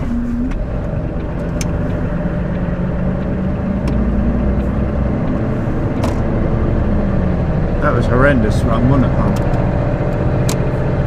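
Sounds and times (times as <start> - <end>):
diesel truck engine droning: 0.0 - 11.0
road noise: 0.0 - 11.0
sharp clicks: 0.5 - 5.4.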